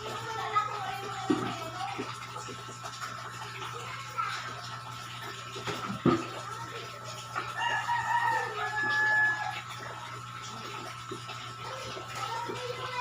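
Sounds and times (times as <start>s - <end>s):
rooster crowing: 7.6s - 9.7s.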